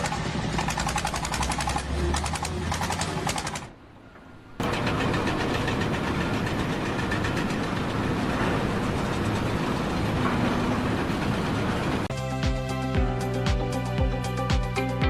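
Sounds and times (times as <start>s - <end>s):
heavy engine rattling: 0.0s - 3.8s, 4.6s - 12.1s
music with steady beat: 12.1s - 15.0s.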